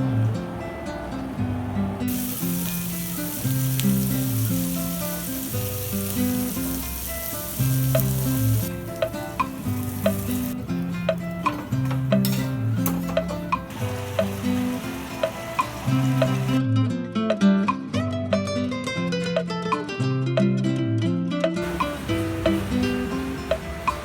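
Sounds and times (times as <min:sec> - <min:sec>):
background music with bass line: 0:01.9 - 0:13.8
food sizzling in hot oil: 0:02.1 - 0:16.6, 0:21.6 - 0:24.0
utensil clinking against pan: 0:11.1 - 0:14.3.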